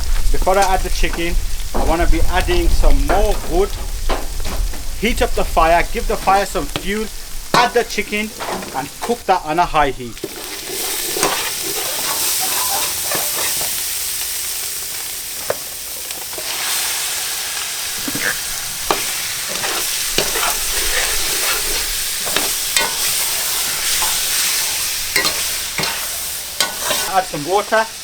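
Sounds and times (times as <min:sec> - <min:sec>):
chicken sizzling in a pan: 0:00.0 - 0:28.0
spoon scraping a pan: 0:10.2 - 0:13.8, 0:17.9 - 0:27.4.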